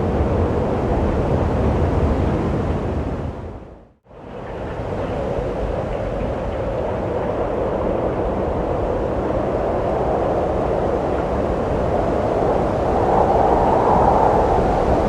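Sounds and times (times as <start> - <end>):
wind rushing: 7.5 - 15.0.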